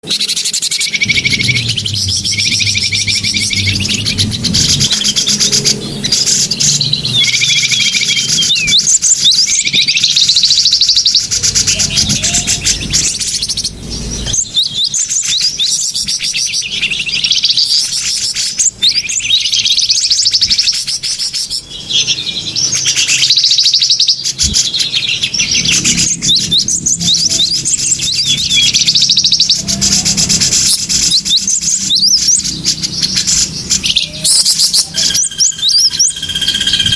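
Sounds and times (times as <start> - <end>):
small birds chirping and trilling: 0.0 - 36.9.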